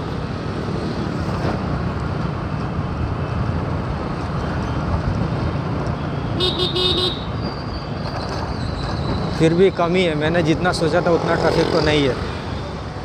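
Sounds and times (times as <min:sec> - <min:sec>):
road and traffic noise: 0:00.0 - 0:13.0
vehicle horn honking: 0:06.4 - 0:07.3.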